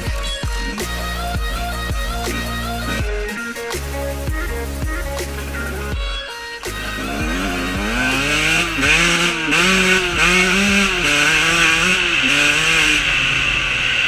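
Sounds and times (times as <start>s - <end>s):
two-stroke dirt bike revving: 6.6s - 14.0s.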